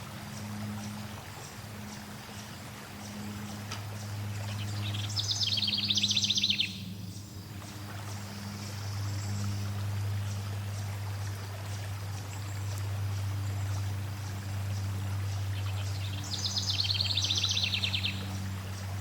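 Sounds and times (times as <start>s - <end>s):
flowing water: 0.0s - 19.0s
songbird trilling: 4.5s - 7.3s, 15.7s - 18.3s.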